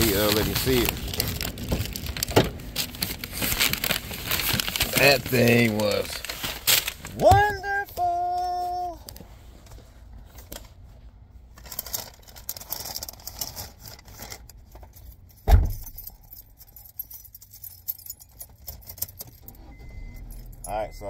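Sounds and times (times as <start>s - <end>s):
keys jingling: 14.3s - 20.9s.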